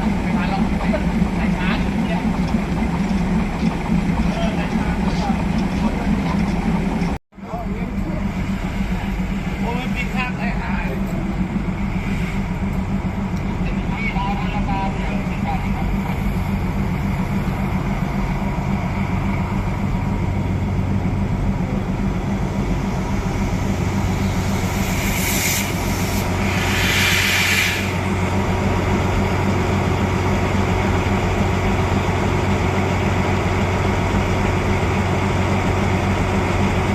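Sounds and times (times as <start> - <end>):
diesel engine idling: 0.0 - 36.9
compressed air hissing: 24.6 - 28.0.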